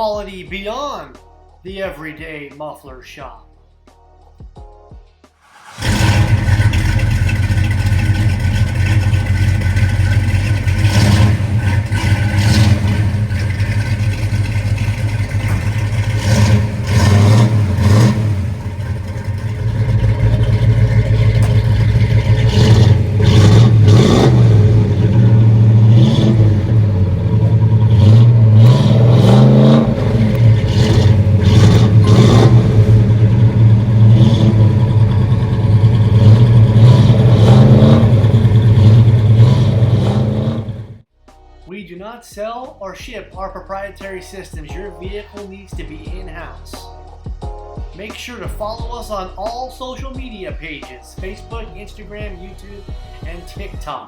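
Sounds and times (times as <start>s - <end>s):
car engine idling and revving: 5.4s - 41.1s.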